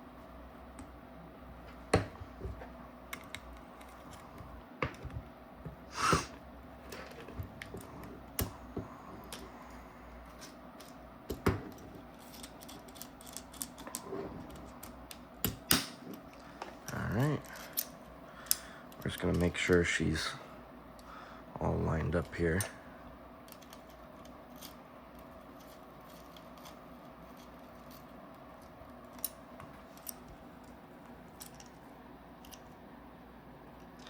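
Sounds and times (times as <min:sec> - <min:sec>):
small metal parts clicking: 0:12.1 - 0:13.9.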